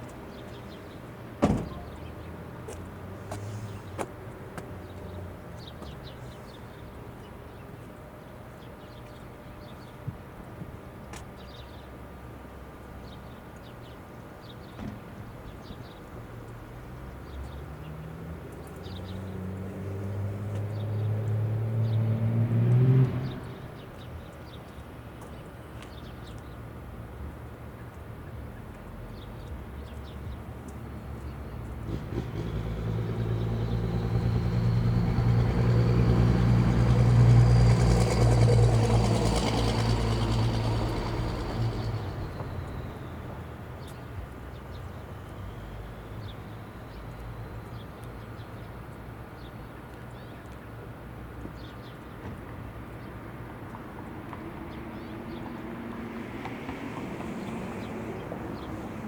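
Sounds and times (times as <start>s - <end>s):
motor vehicle passing by: 17.6s - 23.6s, 31.7s - 43.5s, 54.4s - 59.0s.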